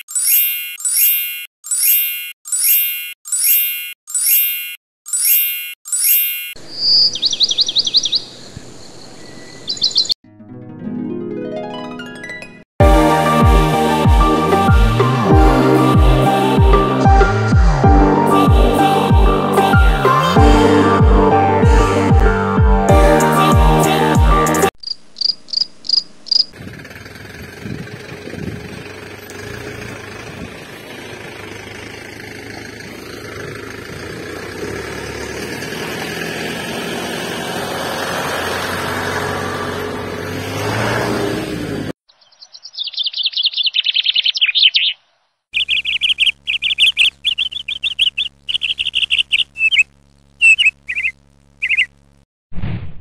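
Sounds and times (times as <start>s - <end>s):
birds chirping: 2.7s - 10.2s, 24.8s - 26.6s, 28.9s - 36.7s, 42.1s - 52.0s.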